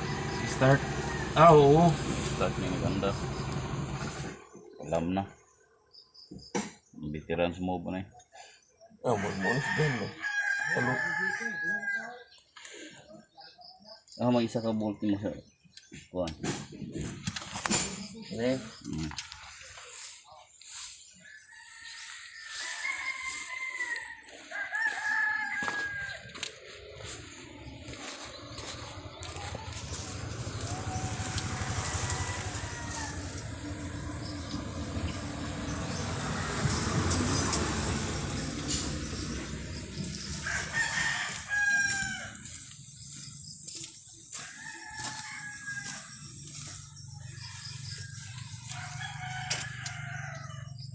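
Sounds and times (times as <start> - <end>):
rooster crowing: 0.0 - 3.9, 9.0 - 12.3, 21.2 - 42.8, 44.3 - 50.9
low rumble: 26.8 - 40.8.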